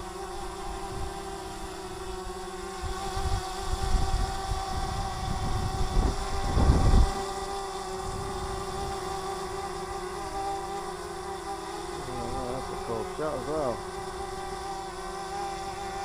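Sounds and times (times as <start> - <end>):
drone propellers whining: 2.7 - 16.0
wind buffeting microphone: 2.8 - 7.2.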